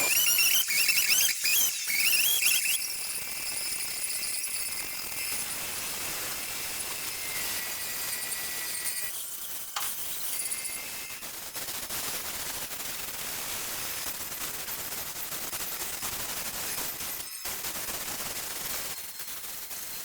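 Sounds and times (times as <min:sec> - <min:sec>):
saw cutting wood: 0:00.0 - 0:05.4.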